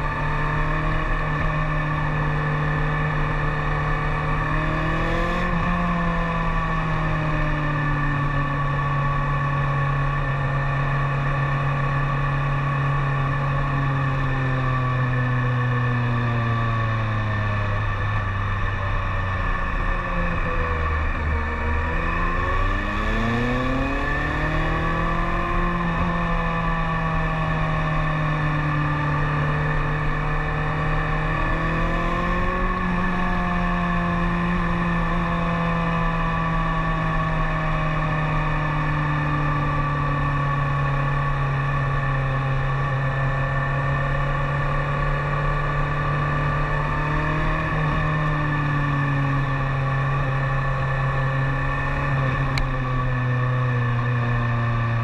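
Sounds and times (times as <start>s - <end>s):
motorcycle engine revving and cruising: 0.0s - 55.0s.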